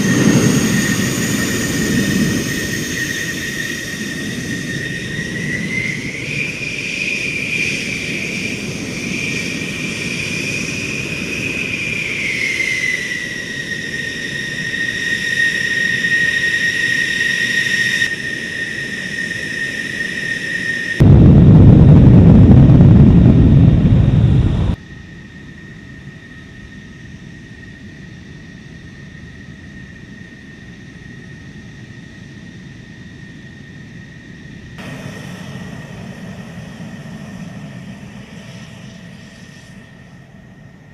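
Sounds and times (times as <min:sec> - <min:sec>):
jet engine whining: 0:00.0 - 0:40.9
loud low rumble: 0:21.0 - 0:24.8.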